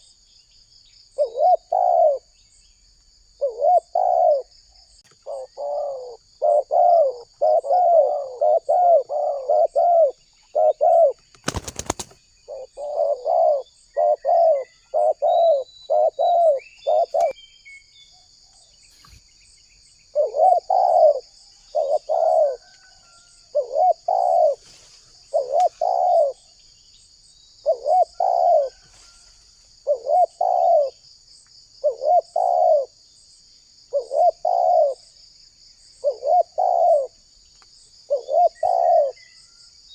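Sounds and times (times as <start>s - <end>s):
faint bird chirps: 0.0s - 39.9s
dove cooing: 1.2s - 2.3s, 3.4s - 4.5s, 5.1s - 17.4s, 20.1s - 26.6s, 27.6s - 29.2s, 29.8s - 31.0s, 31.8s - 33.0s, 33.9s - 35.1s, 36.0s - 37.2s, 38.1s - 39.3s
high insect chirring: 18.8s - 39.2s.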